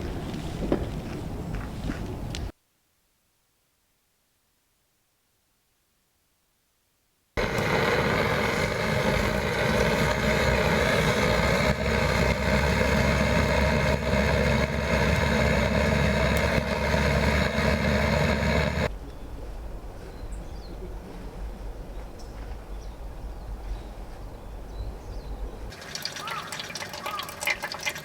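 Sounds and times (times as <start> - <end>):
engine-like running noise: 7.4 - 18.9.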